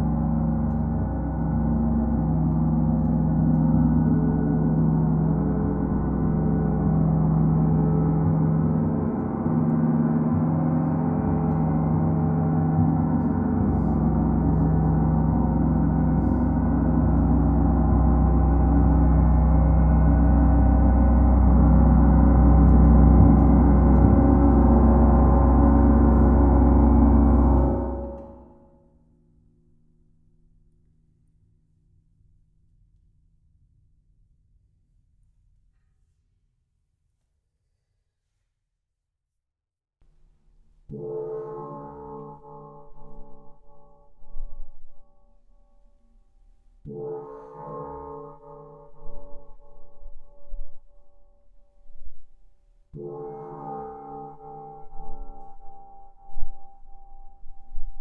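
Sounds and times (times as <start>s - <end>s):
gong shimmering: 0.0s - 28.6s.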